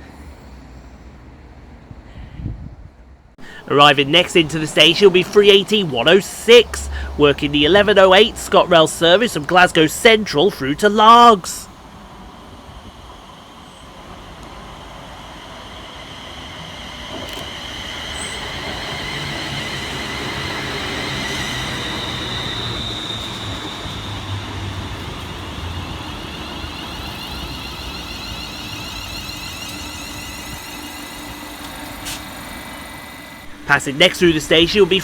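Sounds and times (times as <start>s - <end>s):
train wheels rumbling: 3.4s - 35.0s.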